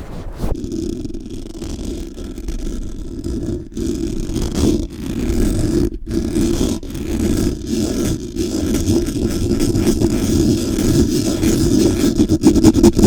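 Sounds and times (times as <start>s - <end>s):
microphone rubbed and scratched: 0.0s - 13.0s.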